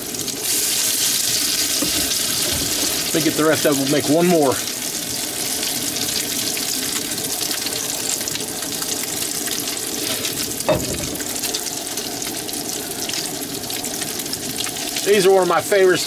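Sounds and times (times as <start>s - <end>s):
patties sizzling in oil: 0.0s - 16.0s
short knock: 10.7s - 11.3s.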